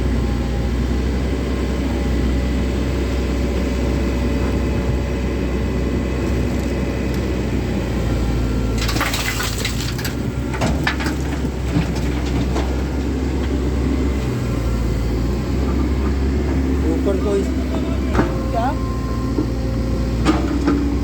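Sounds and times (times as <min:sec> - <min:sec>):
excavator diesel engine running: 0:00.0 - 0:21.0
soil and rocks crunching in bucket: 0:06.1 - 0:07.4, 0:08.5 - 0:13.8.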